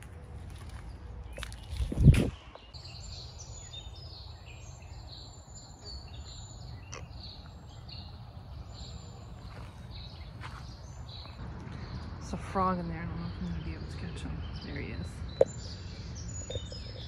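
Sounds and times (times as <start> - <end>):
birds chirping: 0.0 - 17.0
wind noise rumble: 1.3 - 2.7.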